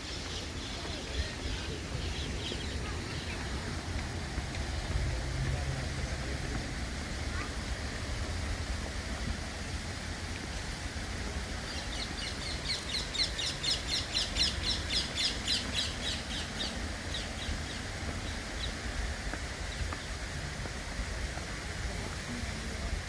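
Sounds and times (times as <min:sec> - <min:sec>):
bird chirping rapidly: 0:11.7 - 0:18.7.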